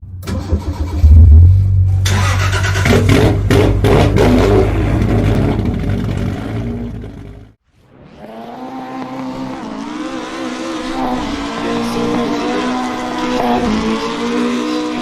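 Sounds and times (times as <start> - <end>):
car engine starting and revving: 0.1 - 15.0.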